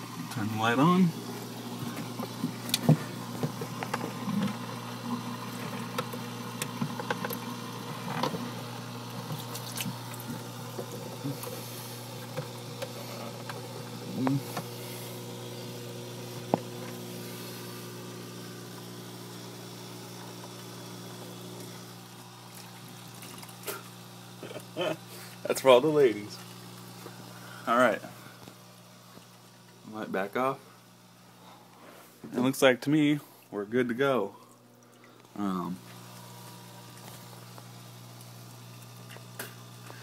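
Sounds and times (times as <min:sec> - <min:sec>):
electric pump hum: 0:00.0 - 0:40.0
water trickling and splashing: 0:01.8 - 0:11.4, 0:22.3 - 0:23.7.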